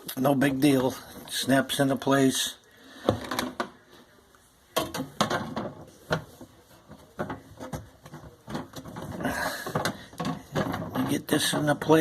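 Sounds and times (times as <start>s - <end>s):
dishwasher parts clicking and knocking: 4.7s - 12.0s.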